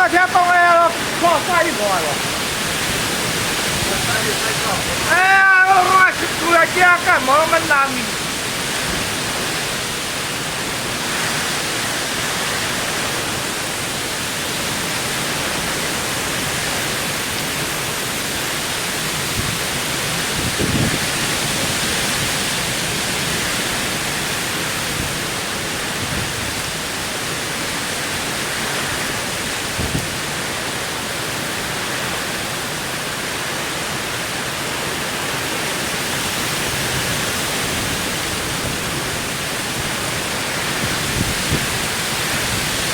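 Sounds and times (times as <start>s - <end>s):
heavy rain downpour: 0.0s - 42.9s.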